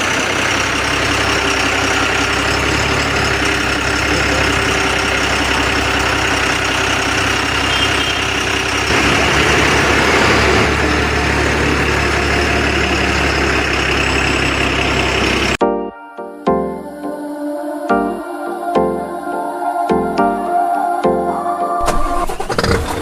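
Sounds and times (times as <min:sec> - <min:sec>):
truck engine idling: 0:00.0 - 0:15.6.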